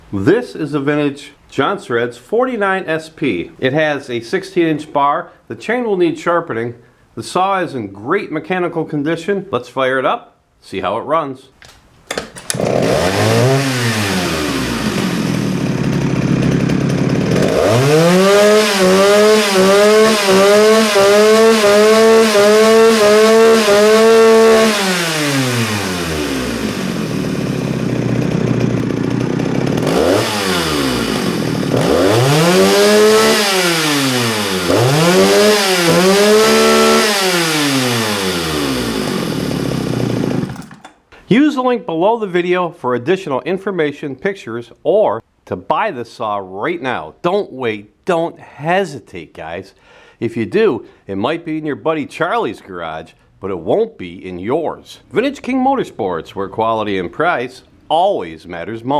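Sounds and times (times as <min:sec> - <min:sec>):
chainsaw revving and idling: 0:12.5 - 0:41.0.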